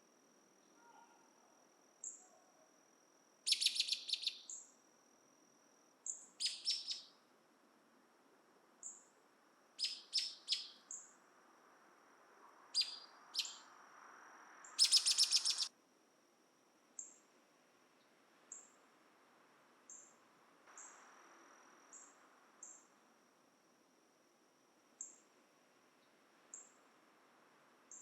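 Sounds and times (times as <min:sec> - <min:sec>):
small birds chirping: 0:03.4 - 0:04.7, 0:06.0 - 0:07.2, 0:09.8 - 0:11.2, 0:12.7 - 0:13.7, 0:14.6 - 0:15.7.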